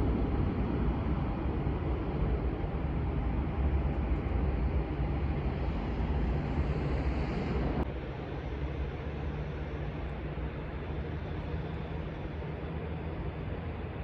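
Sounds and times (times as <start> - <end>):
jet engines roaring: 0.0 - 14.0
jet engine hiss: 4.4 - 9.7.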